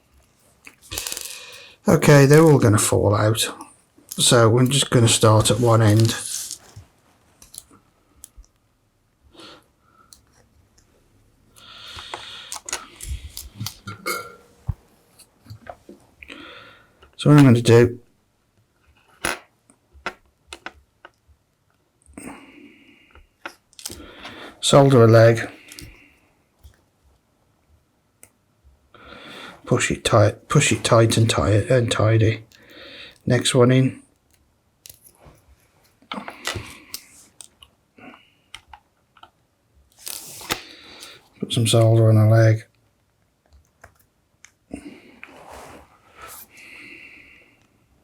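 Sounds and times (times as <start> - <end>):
small parts scraping: 0.6 - 1.7, 4.1 - 6.8, 11.7 - 14.4
small parts clicking: 0.7 - 1.7, 11.6 - 13.9, 23.4 - 24.0, 34.2 - 35.2
light clicks of small parts: 7.4 - 8.7, 23.4 - 24.1, 34.2 - 35.2.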